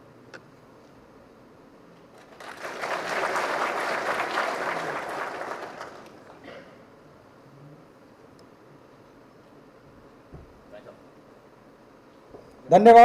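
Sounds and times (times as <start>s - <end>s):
audience applauding: 2.2s - 6.4s.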